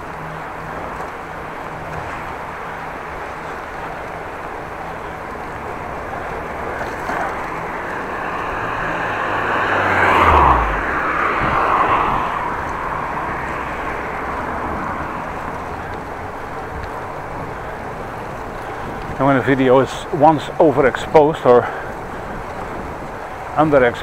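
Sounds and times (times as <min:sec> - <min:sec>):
bicycle riding on road: 0:00.0 - 0:24.0
motor vehicle passing by: 0:01.6 - 0:20.8.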